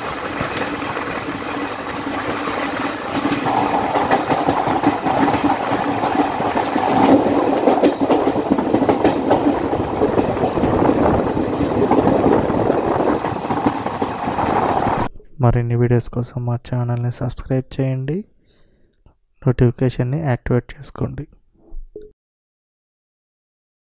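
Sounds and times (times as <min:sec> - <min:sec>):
train rushing past: 0:00.0 - 0:15.1
wheel clicks over rail joints: 0:00.0 - 0:15.1.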